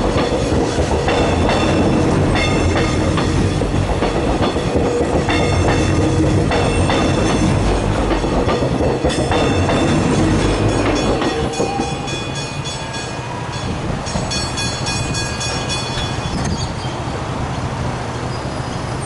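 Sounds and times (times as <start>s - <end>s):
crossing bells ringing: 0.0s - 16.8s
train wheels clacking over rails: 0.0s - 16.8s
train rumble: 0.0s - 19.0s.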